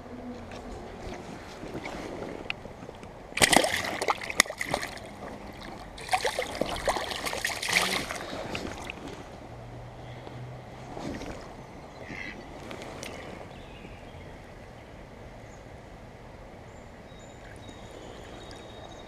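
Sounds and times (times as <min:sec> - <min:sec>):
fish thrashing and splashing: 0:01.0 - 0:09.3
stream hissing: 0:01.9 - 0:09.4.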